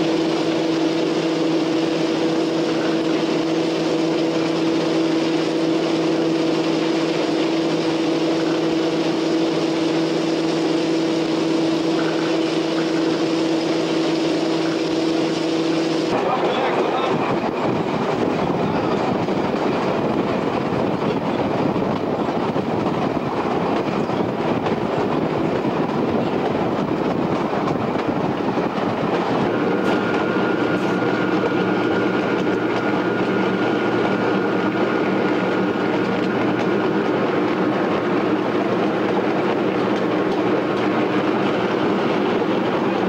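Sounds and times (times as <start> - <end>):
diesel engine drone: 0.0 - 19.2, 24.2 - 43.0
train wheels on rails: 0.0 - 43.0.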